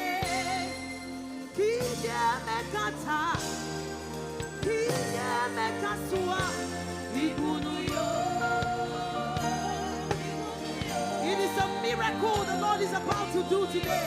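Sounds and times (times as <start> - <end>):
bass: 0.0 - 14.0
sustained keyboard chords: 0.0 - 14.0.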